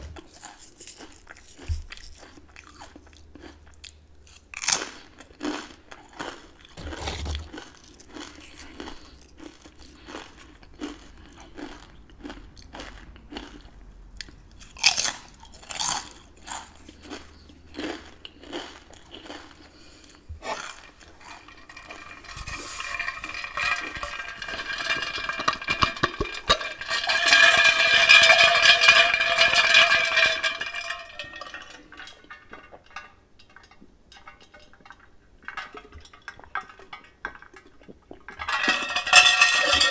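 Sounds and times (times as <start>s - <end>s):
chewing crunchy chips: 0.0s - 22.0s.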